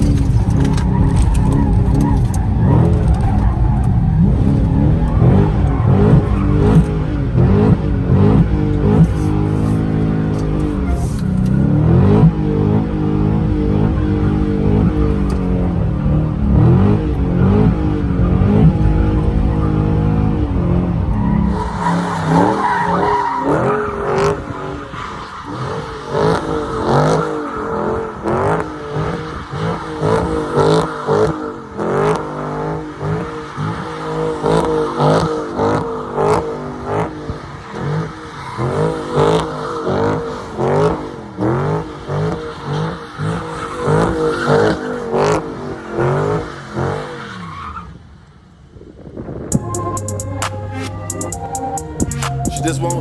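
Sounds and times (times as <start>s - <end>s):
tyres squealing: 0.0s - 7.6s
car engine revving hard: 0.0s - 47.2s.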